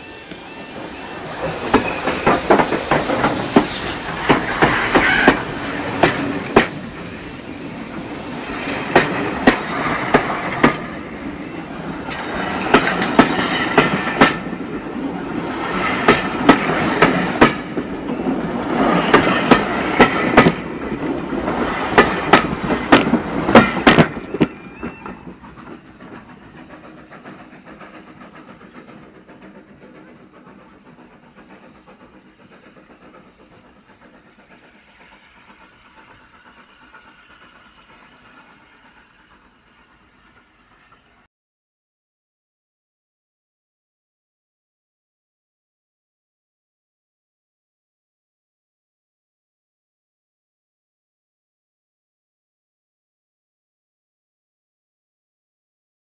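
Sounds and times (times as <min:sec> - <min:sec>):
wheels clacking over rail joints: 0:00.0 - 0:41.2
train rumble: 0:00.0 - 0:41.3.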